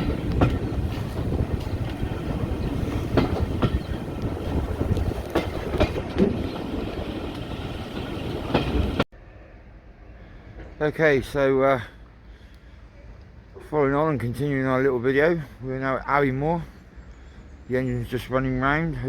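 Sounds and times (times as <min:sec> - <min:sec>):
wheels clickety-clack over rail joints: 0:00.0 - 0:09.1
railway carriage rumbling on track: 0:00.0 - 0:19.0.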